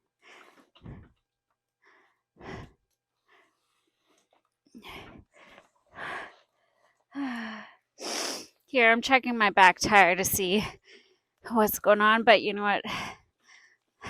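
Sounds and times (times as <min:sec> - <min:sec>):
woman breathing hard: 0:01.8 - 0:03.5, 0:04.8 - 0:06.5.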